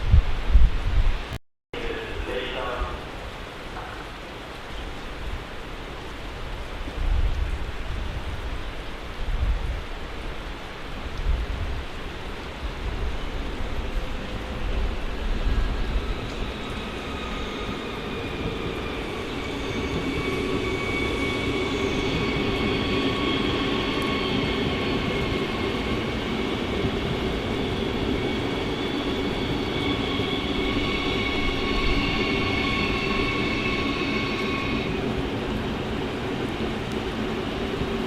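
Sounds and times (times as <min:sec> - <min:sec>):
train rumble: 0:10.8 - 0:38.0
high whining tones: 0:27.5 - 0:35.0.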